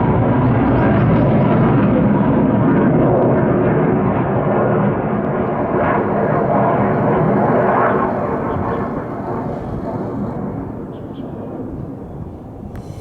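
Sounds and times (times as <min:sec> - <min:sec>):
fighter jet roaring overhead: 0:01.6 - 0:13.0.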